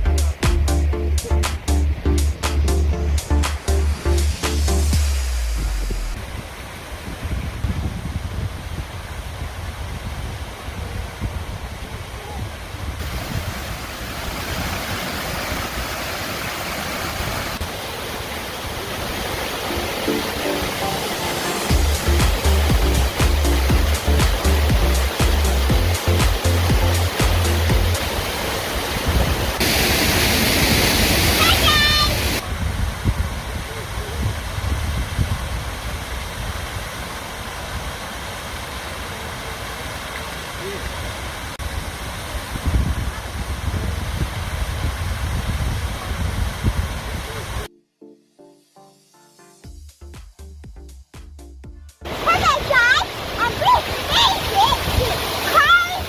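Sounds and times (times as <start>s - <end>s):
stream water rushing: 0.0s - 47.7s, 52.0s - 56.0s
wind rumbling on microphone: 5.0s - 19.7s, 27.6s - 31.4s, 32.1s - 38.7s, 40.9s - 47.7s.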